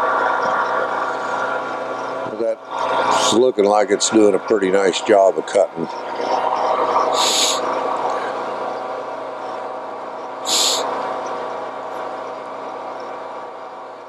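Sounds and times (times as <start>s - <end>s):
milling machine cutting metal: 0.0s - 13.8s
short high hisses: 7.2s - 7.6s, 10.5s - 10.9s.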